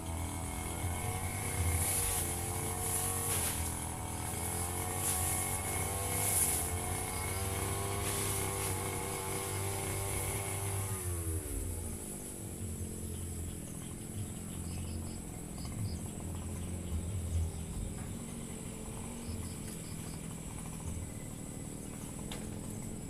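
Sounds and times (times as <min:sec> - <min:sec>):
brush cutter engine running: 0:00.0 - 0:23.0
faint insect chirps: 0:11.5 - 0:23.0.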